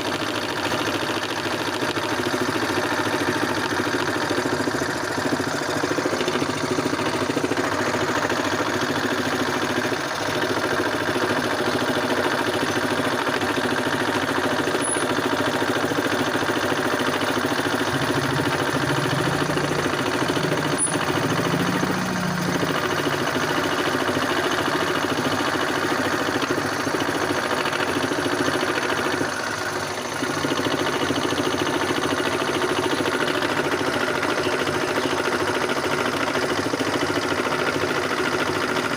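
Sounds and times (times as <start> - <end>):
scroll saw cutting: 12.2 - 25.6.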